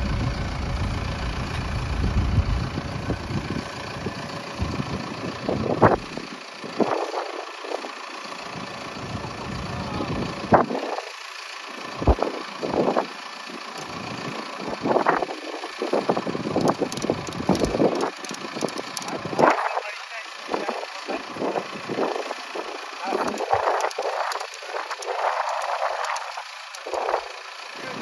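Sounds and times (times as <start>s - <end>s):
wind buffeting microphone: 0.0s - 7.9s, 12.0s - 13.1s, 14.7s - 19.8s
engine running: 0.0s - 28.0s.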